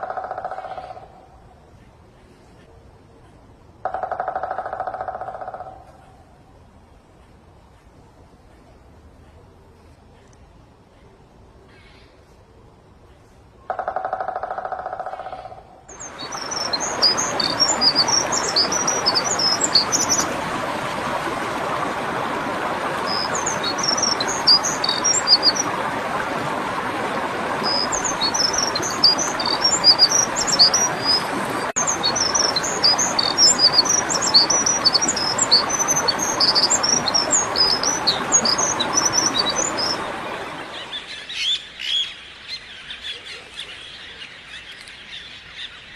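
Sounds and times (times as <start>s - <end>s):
small birds chirping: 15.9s - 45.9s.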